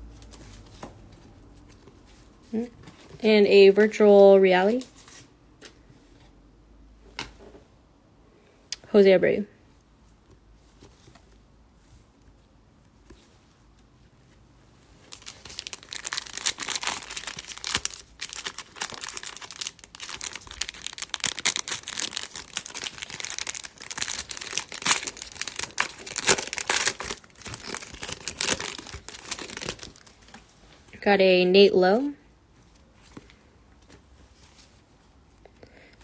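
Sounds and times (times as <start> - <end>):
card pack wrapper tearing and crinkling: 15.1 - 30.2.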